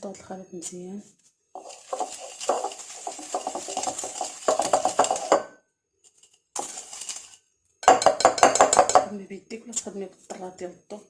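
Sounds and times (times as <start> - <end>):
utensil scraping a mixing bowl: 1.6 - 5.5, 6.6 - 9.1.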